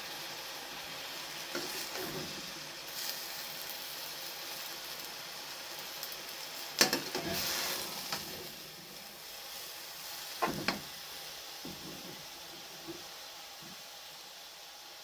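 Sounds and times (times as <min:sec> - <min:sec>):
food sizzling in a frying pan: 0:00.0 - 0:15.0
knocks against a pan: 0:10.4 - 0:10.9, 0:11.7 - 0:12.2.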